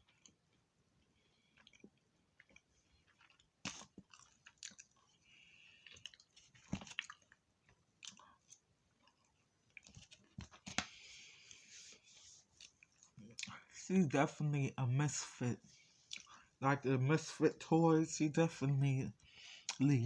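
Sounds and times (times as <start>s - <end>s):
person chewing food: 0.0s - 13.7s, 15.6s - 16.6s, 19.2s - 19.8s.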